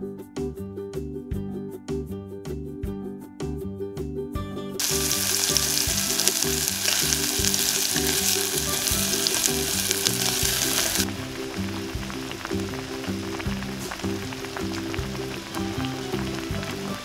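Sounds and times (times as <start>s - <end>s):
oil sizzling in a pot: 4.8s - 17.0s.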